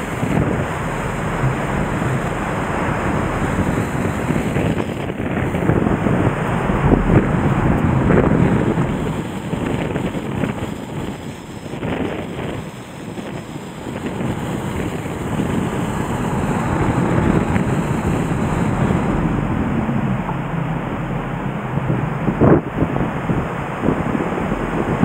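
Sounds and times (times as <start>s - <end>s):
river rushing: 0.0s - 25.0s
wind gusting against microphone: 0.0s - 25.0s.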